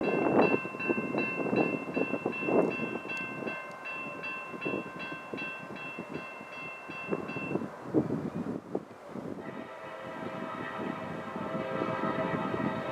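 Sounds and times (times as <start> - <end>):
railroad crossing bell ringing: 0.0 - 7.9
passing train rumble and clatter: 0.0 - 12.9.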